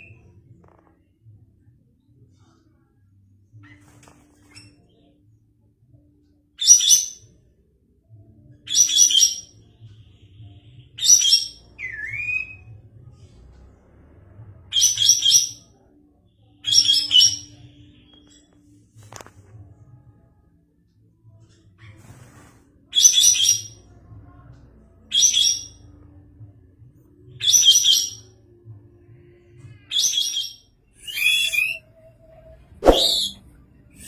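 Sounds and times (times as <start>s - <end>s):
swooping whistle: 32.8s - 33.4s.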